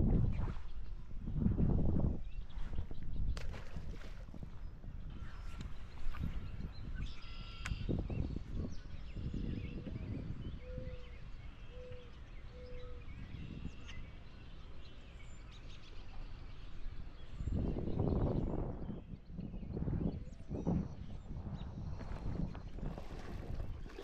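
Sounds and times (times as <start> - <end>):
songbirds chirping: 2.0 - 24.0.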